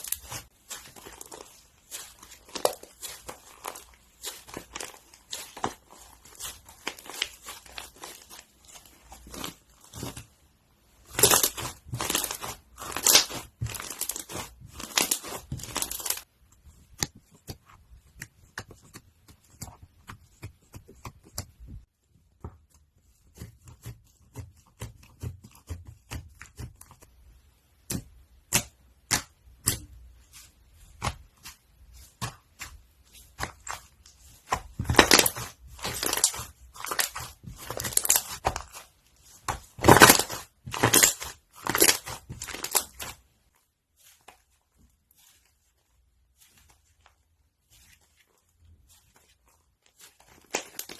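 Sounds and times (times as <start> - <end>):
slime crackling and popping: 0.0 - 10.4, 11.0 - 16.3, 33.3 - 43.3, 50.0 - 50.9.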